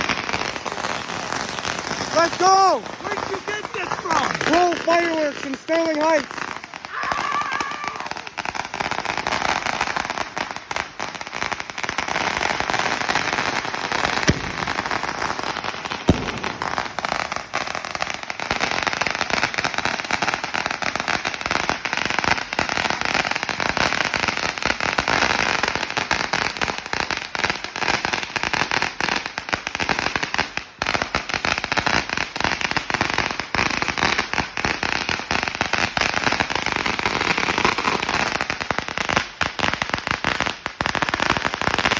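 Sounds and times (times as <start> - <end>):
firecracker roll crackling: 0.0 - 41.9
loud single firecracker bangs: 12.0 - 20.5.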